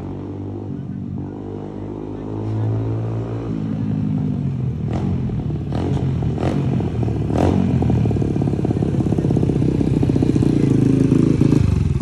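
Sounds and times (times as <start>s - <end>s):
dirt bike engine running: 4.9s - 12.0s.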